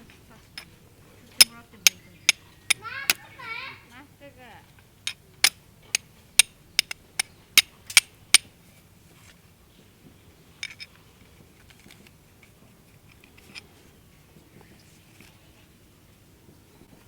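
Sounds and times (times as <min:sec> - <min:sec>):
hard objects clinking together: 0:00.0 - 0:03.3, 0:04.8 - 0:08.5, 0:10.6 - 0:10.9.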